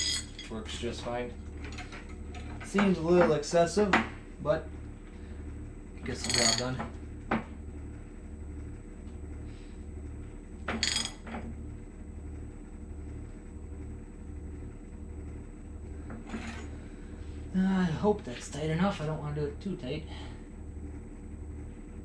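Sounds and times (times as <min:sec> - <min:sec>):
low pulsing hum: 0:00.0 - 0:22.0
socket wrench metallic clink: 0:06.2 - 0:06.6.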